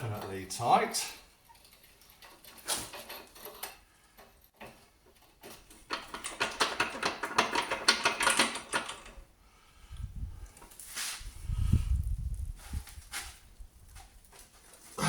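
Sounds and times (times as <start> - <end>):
rapid metallic clicking and rattling: 4.4 - 9.2.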